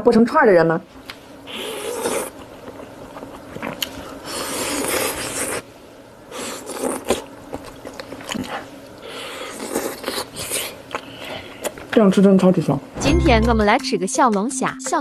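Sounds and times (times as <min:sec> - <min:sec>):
person chewing food: 0:01.5 - 0:05.6, 0:06.4 - 0:11.9.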